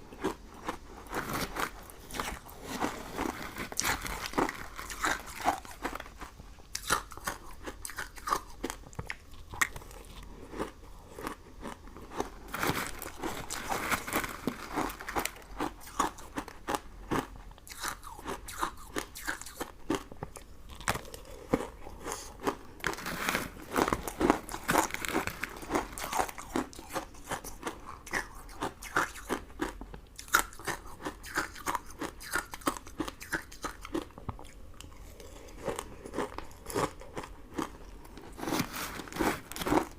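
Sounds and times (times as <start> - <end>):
chewing and crunching sweets: 0.0 - 39.9.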